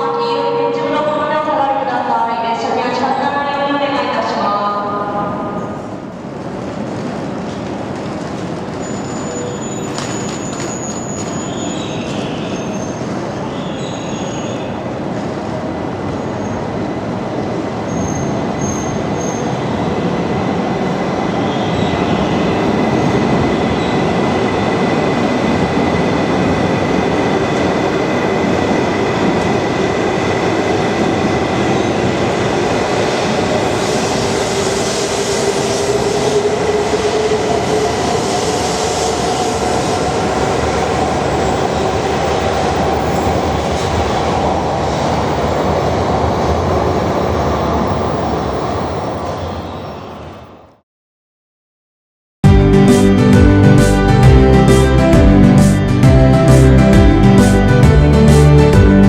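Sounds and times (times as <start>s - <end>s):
train wheels rumbling: 4.2s - 49.6s.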